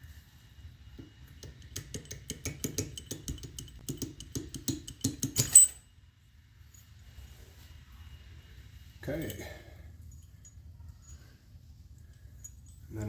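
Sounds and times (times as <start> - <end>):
small metal parts clinking: 4.8 - 5.9, 12.0 - 13.0.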